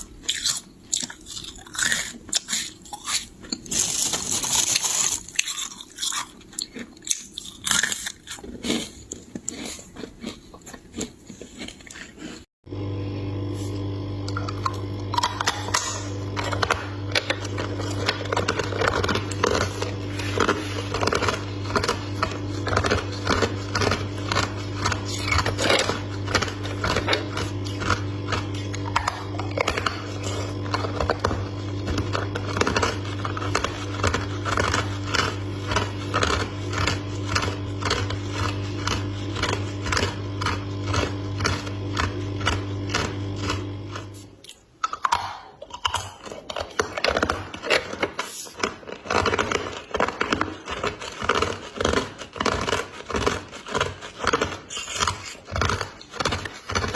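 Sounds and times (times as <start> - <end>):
low hum: 12.7 - 44.4.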